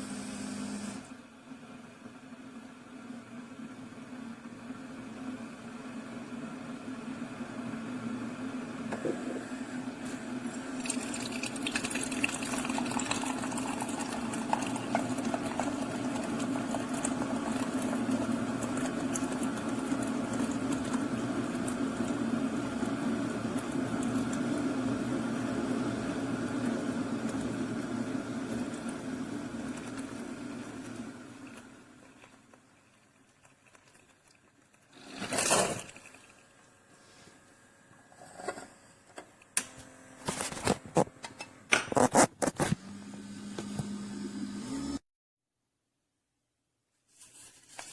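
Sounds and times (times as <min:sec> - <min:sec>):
coffee maker pump humming: 0:00.0 - 0:01.3, 0:04.5 - 0:45.0
liquid pouring into cup: 0:10.6 - 0:23.0.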